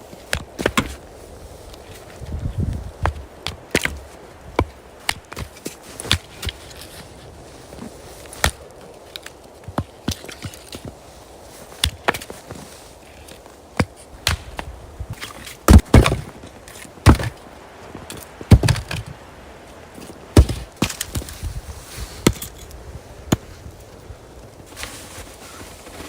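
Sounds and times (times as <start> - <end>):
axe chopping wood: 0.3 - 1.0, 8.4 - 8.6, 13.8 - 16.4, 17.0 - 17.4, 18.5 - 19.0, 20.4 - 21.3.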